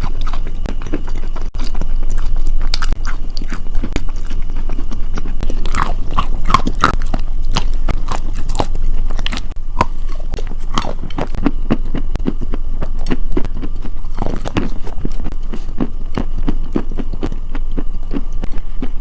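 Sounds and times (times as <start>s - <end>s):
crunchy food chewing: 0.0s - 19.0s.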